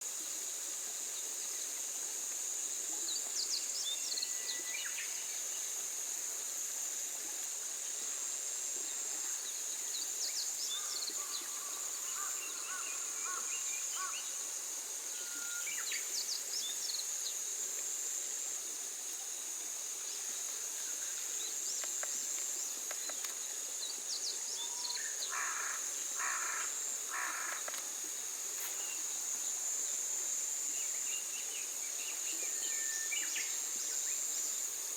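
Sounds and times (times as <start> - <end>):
high-pitched insect drone: 7.8 - 34.9.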